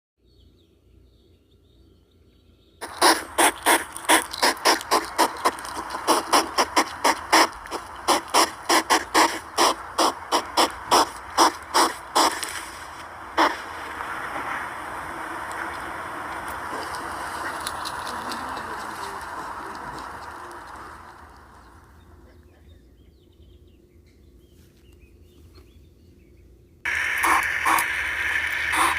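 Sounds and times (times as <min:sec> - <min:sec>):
hedgehog clicking: 0:02.8 - 0:13.6, 0:26.9 - 0:28.9
steady hiss: 0:02.8 - 0:22.3, 0:26.9 - 0:28.9.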